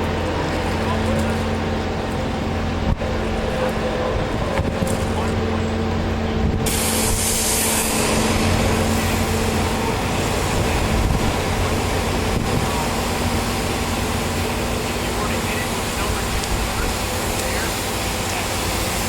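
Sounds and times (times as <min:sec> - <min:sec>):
pressure washer motor hum: 0:00.0 - 0:19.0
high-pressure water spray hissing: 0:06.0 - 0:19.0.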